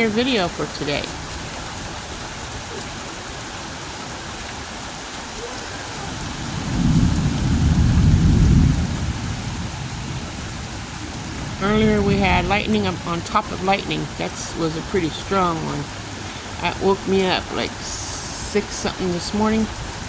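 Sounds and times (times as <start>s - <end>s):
steady rain falling: 0.0s - 20.0s
low rumble of thunder: 6.0s - 14.3s.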